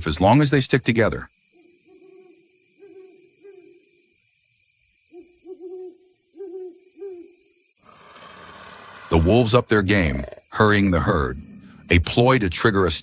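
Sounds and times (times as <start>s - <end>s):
low hooting animal calls: 5.1s - 12.8s.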